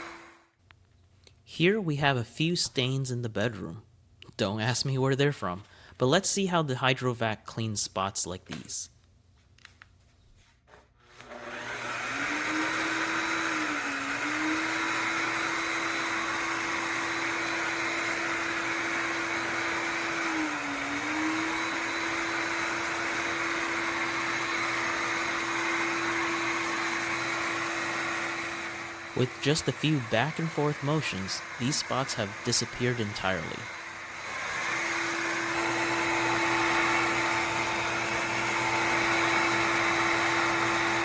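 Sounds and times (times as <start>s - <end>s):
wet-dry vacuum mop running: 0.0s - 0.4s, 11.1s - 41.0s.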